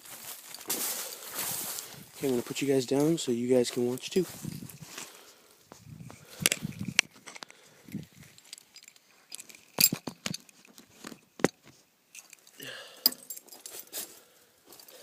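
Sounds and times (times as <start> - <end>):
keys jangling: 6.1 - 10.8, 12.1 - 13.9.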